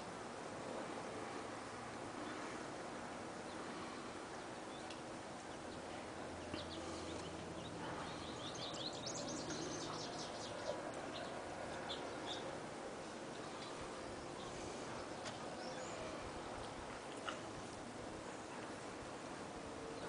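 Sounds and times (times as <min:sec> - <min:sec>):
faint outdoor background noise: 0:00.0 - 0:20.0
songbird chirping: 0:03.4 - 0:17.4.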